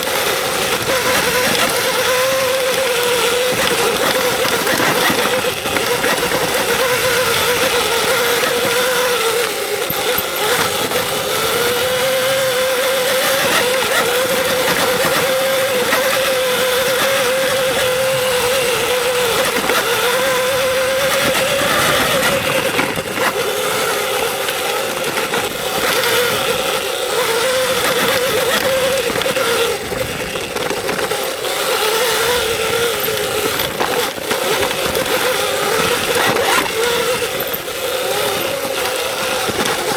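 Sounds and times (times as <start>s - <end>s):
electric motor whine: 0.0s - 39.9s.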